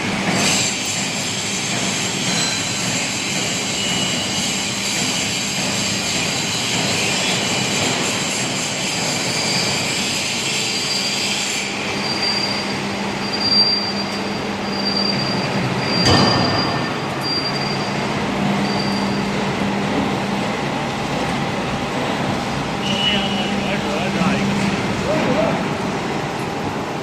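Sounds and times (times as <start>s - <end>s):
high metallic squeal: 8.0s - 19.5s, 22.8s - 23.8s
sharp metal clank: 16.0s - 17.4s.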